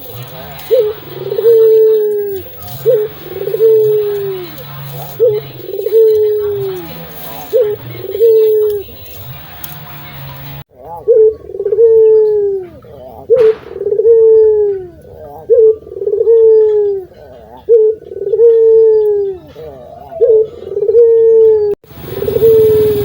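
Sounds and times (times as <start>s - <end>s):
dove cooing: 0.0s - 23.0s.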